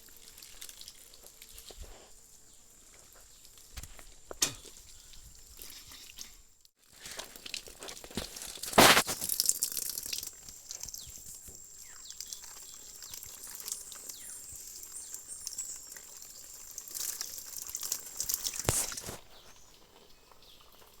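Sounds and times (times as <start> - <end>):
water splashing and trickling: 0.0 - 21.0
high-pitched insect whine: 9.0 - 19.2
faint chirps: 10.8 - 17.5.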